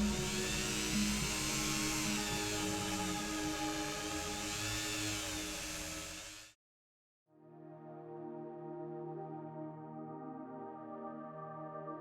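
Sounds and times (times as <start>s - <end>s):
background music: 0.0s - 5.6s, 7.4s - 12.0s
rotary tool wire brush whine: 0.0s - 6.6s.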